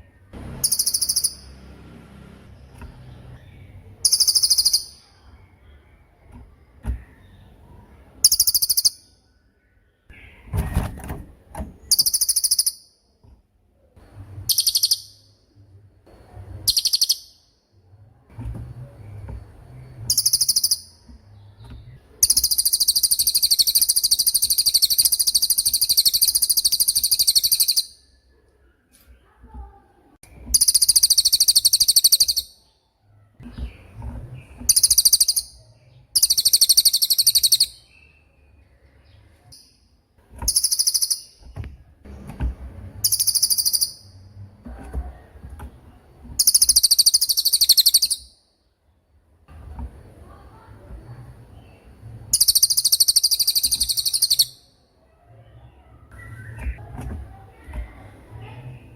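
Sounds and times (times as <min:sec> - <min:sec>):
songbird high-pitched rattling trills: 0:00.6 - 0:01.6, 0:04.0 - 0:05.2, 0:08.2 - 0:09.0, 0:11.9 - 0:13.0, 0:14.5 - 0:15.3, 0:16.6 - 0:17.4, 0:20.1 - 0:21.1, 0:22.2 - 0:28.0, 0:30.5 - 0:32.6, 0:34.7 - 0:37.8, 0:40.5 - 0:41.4, 0:43.0 - 0:44.2, 0:46.4 - 0:48.4, 0:52.3 - 0:54.7.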